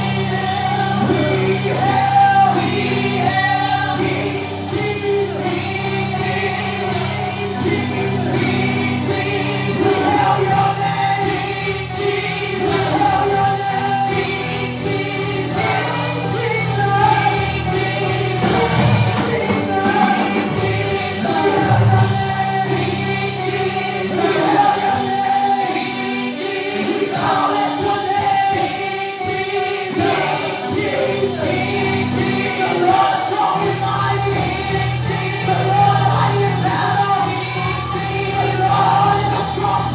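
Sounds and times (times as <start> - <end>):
bass notes: 0.0 - 25.6, 30.0 - 39.9
gospel choir singing: 0.0 - 39.9
drum beat: 6.6 - 25.9.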